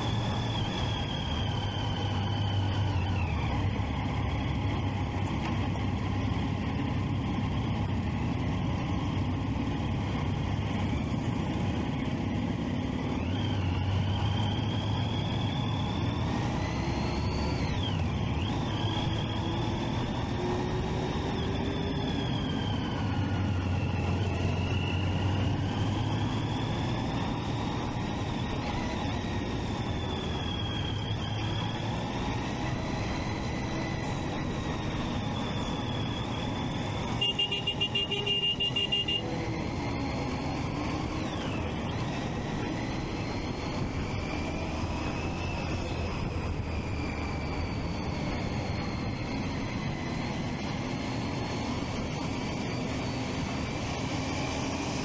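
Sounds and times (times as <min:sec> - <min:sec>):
wind and road noise: 0:00.0 - 0:55.0
motorcycle engine running: 0:17.7 - 0:46.6.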